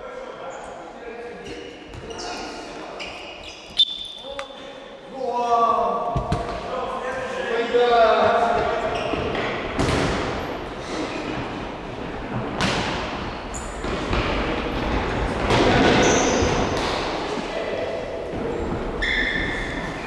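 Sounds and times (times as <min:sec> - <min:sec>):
football kicked and bouncing: 0:06.2 - 0:06.6, 0:09.8 - 0:10.3, 0:12.4 - 0:17.5.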